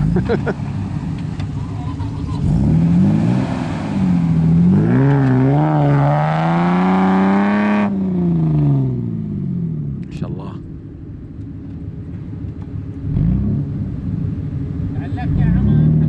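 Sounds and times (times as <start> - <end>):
engine revving hard: 2.4 - 9.1, 13.1 - 14.0.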